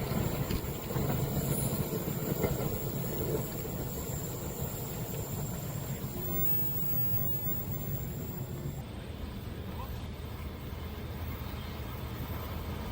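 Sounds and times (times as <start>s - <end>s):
train rumbling past: 0.0s - 12.9s.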